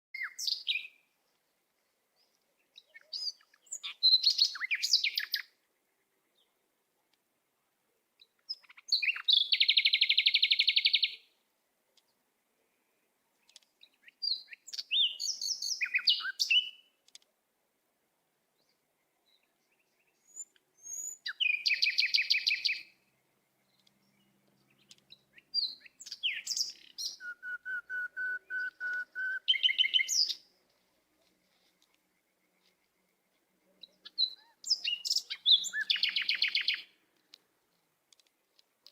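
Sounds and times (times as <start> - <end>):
small bird trilling and chirping: 2.8 - 5.5, 8.2 - 11.2, 20.1 - 22.9, 23.6 - 27.2, 28.5 - 30.4, 33.8 - 36.9.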